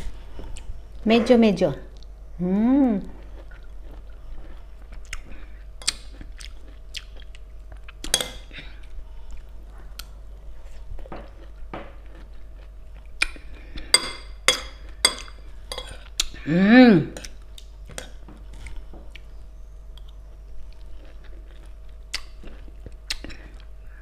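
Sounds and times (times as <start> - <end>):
person humming: 2.4 - 3.2, 16.4 - 17.2
person chewing: 3.0 - 16.5, 17.2 - 23.8.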